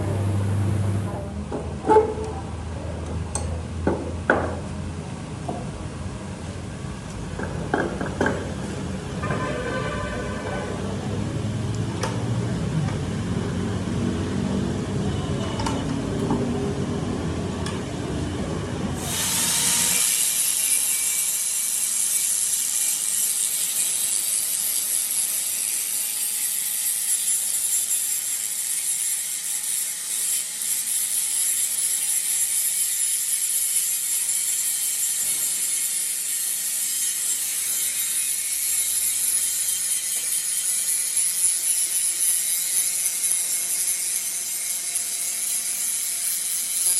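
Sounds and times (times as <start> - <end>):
high hissing metal cutting: 18.8 - 46.9.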